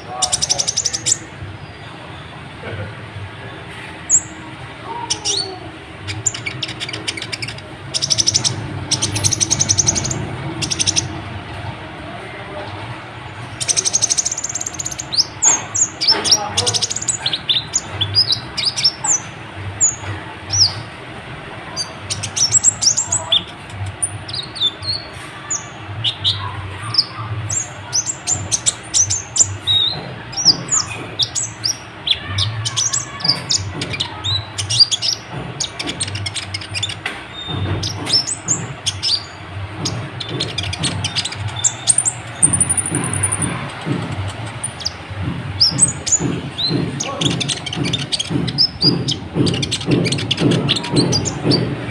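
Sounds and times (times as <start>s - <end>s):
sunbird chirping and trilling: 4.0s - 11.2s.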